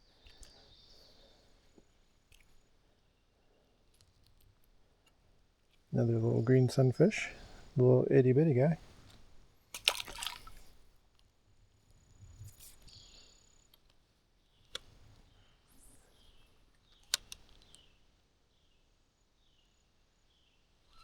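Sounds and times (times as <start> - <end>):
faint outdoor ambience: 0.0 - 21.0
sharp clicks: 16.9 - 17.8.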